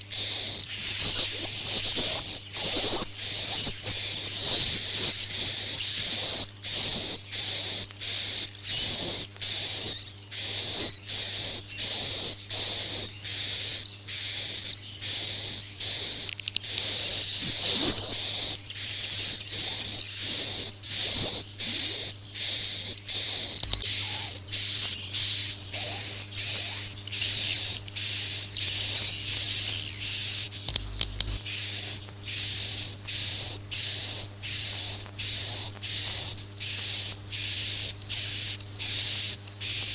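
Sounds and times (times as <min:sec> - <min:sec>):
steady low hum: 0:00.0 - 0:08.1, 0:09.5 - 0:39.9
twittering bird chirps: 0:00.0 - 0:39.9.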